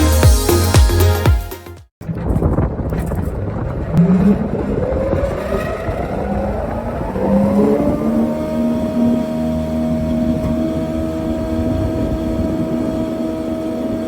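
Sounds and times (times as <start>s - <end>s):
thickness planer running: 4.0s - 14.0s.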